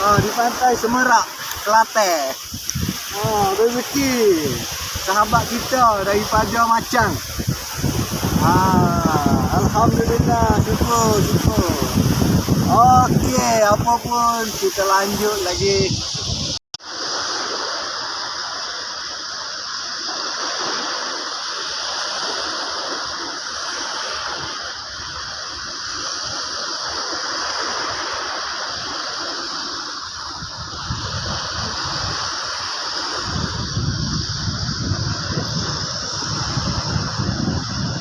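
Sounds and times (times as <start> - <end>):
surf washing on beach: 0.0 - 38.0.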